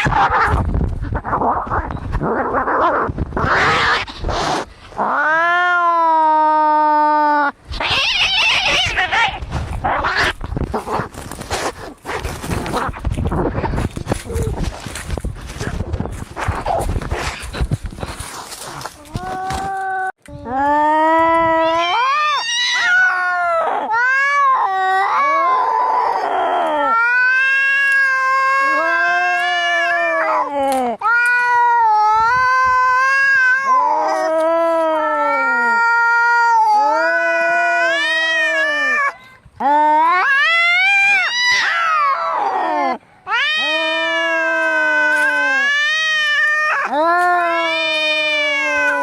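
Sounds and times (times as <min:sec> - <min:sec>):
cats yowling: 0:00.0 - 0:00.6, 0:03.4 - 0:04.1, 0:05.0 - 0:10.4, 0:21.0 - 0:49.0.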